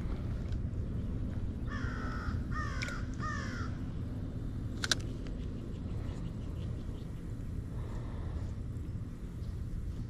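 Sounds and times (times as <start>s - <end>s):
steady low rumble: 0.0s - 10.0s
bird calling: 1.6s - 3.9s.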